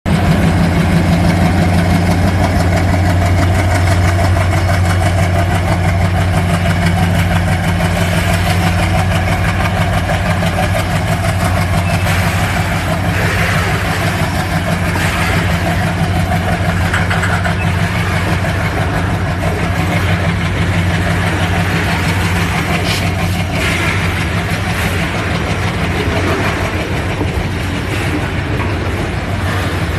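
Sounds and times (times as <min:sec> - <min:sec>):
diesel locomotive engine throbbing: 0:00.1 - 0:29.9.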